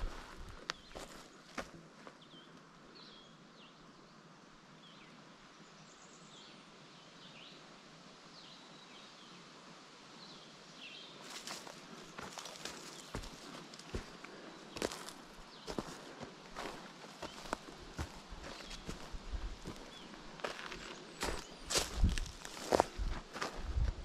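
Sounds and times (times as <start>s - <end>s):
footsteps on trail: 0.0s - 2.2s, 11.2s - 24.0s.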